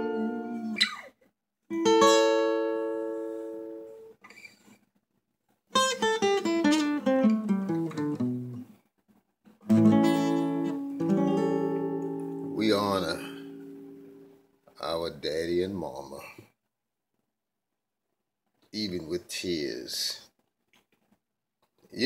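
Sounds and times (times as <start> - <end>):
acoustic guitar: 0.0 - 4.8, 5.7 - 14.9.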